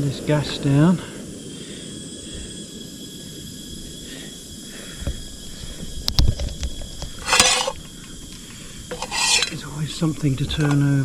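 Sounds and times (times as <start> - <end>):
food being stirred rasp: 7.2 - 7.8, 8.9 - 9.6.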